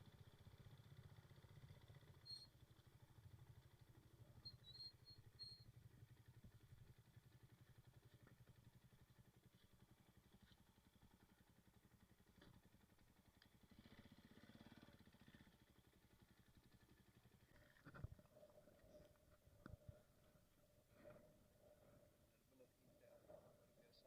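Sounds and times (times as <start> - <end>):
faint low rumble: 5.3 - 24.0.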